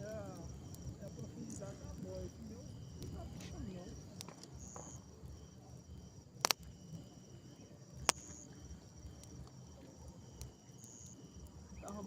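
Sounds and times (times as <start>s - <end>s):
crickets trilling: 0.0s - 12.0s
sharp clicks: 6.4s - 6.7s, 8.0s - 8.4s.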